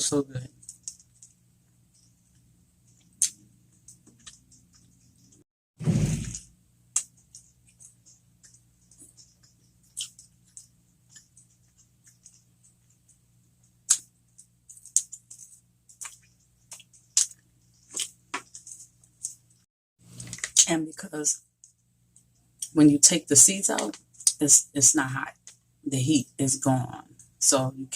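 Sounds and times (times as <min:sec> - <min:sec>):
person chewing: 0:02.0 - 0:05.4, 0:07.0 - 0:13.2, 0:13.8 - 0:19.4
wet clicks and lip smacks: 0:13.9 - 0:14.1, 0:14.7 - 0:18.6.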